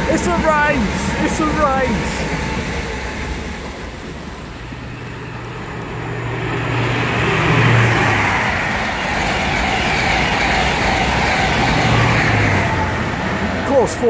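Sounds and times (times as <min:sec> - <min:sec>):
diesel train engine passing: 0:00.0 - 0:14.0
rush of wheels and air: 0:03.0 - 0:14.0.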